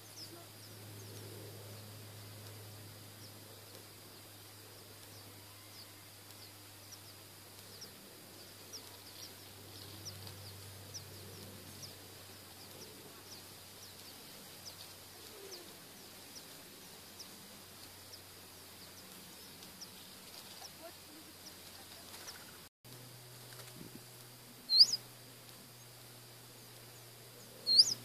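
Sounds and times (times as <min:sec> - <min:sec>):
small birds chirping: 0:00.0 - 0:22.7, 0:24.6 - 0:28.0
faint steady hiss: 0:00.0 - 0:28.0
low hum: 0:00.0 - 0:28.0.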